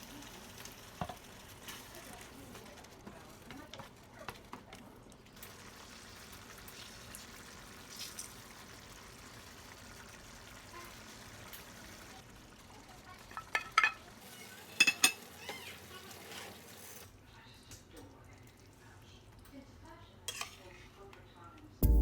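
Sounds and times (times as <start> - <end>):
fish sizzling in a pan: 0.0 - 2.8, 5.2 - 17.1
utensil clinking against pan: 13.4 - 14.0, 14.8 - 15.3.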